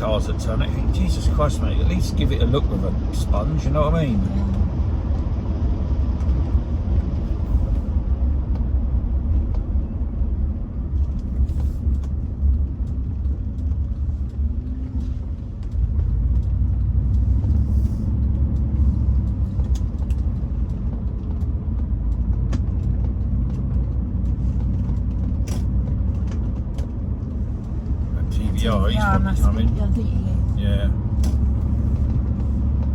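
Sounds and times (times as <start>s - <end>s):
engine and road noise in car: 0.0s - 32.9s.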